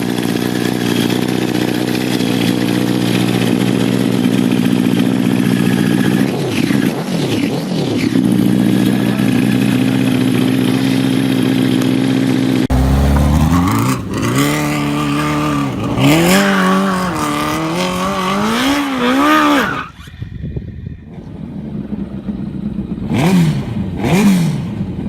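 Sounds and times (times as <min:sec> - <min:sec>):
go-kart engine revving: 0:00.0 - 0:25.0.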